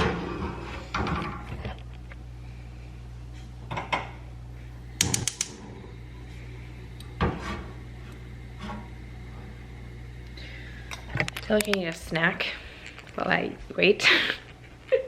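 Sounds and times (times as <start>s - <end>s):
steady low hum: 0.0s - 15.0s
utensil clicks: 5.0s - 5.6s.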